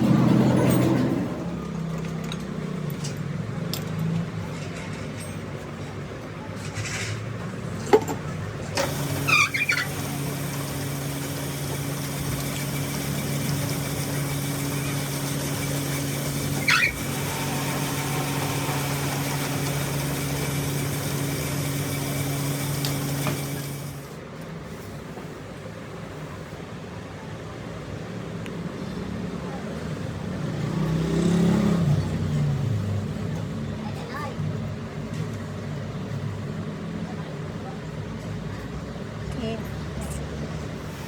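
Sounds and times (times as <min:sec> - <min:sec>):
brief high squeaks: 0:08.8 - 0:10.0, 0:16.6 - 0:17.6
electric motor humming: 0:08.8 - 0:24.2.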